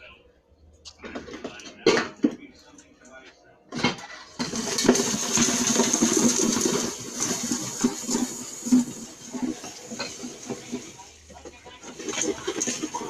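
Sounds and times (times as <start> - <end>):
kernels rattling in metal pot: 3.8 - 13.0.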